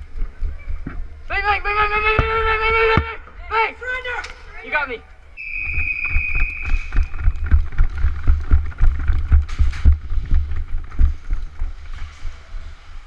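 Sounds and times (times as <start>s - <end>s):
action camera jostling thuds: 5.8s - 11.8s.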